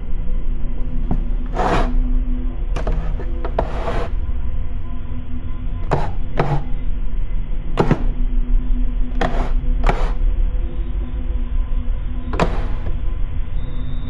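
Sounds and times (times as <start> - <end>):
steady low hum: 0.0 - 14.0
sharp knocks: 7.8 - 8.2.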